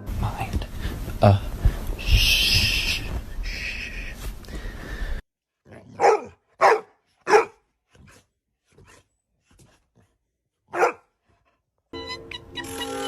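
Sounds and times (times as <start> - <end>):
dog barking: 5.7 - 8.2, 10.7 - 11.1
music: 11.9 - 13.0.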